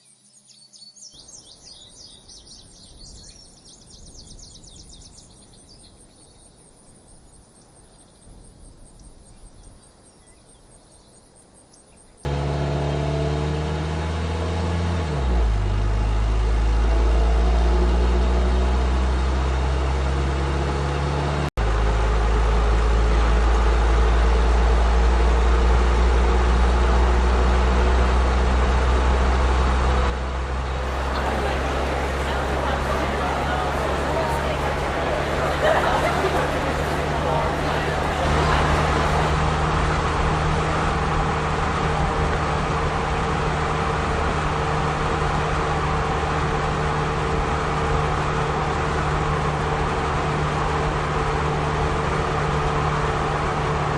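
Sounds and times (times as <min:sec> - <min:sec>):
faint birdsong: 0:00.0 - 0:12.3
insect chirps: 0:05.1 - 0:12.2
car engine hum: 0:12.3 - 0:28.9, 0:29.5 - 0:46.8
road noise inside car: 0:12.3 - 0:53.9.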